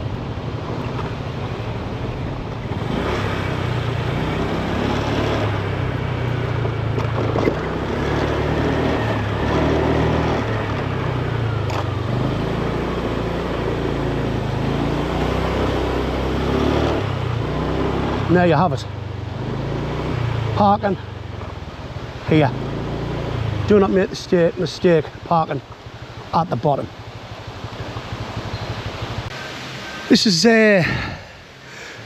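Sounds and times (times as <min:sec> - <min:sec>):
road and wind noise: 0:00.0 - 0:32.0
vehicle engine climbing a hill: 0:00.0 - 0:32.0.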